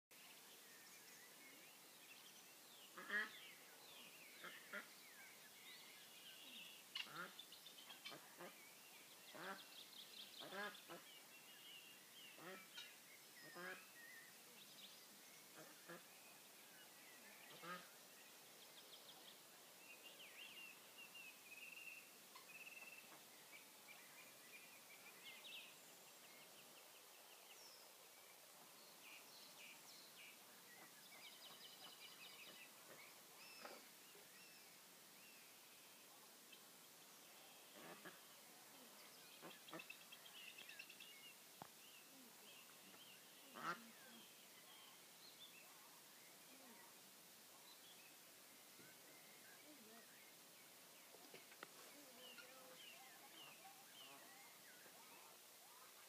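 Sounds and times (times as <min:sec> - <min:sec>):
small birds twittering: 0:00.2 - 0:56.0
faint bird calls: 0:06.3 - 0:08.7, 0:36.2 - 0:56.0.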